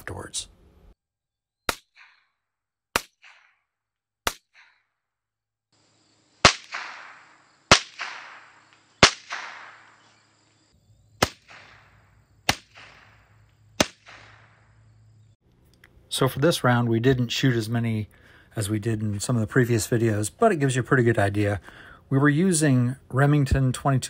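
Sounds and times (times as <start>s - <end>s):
rifle shots with echoes: 6.4s - 10.0s, 13.8s - 14.5s.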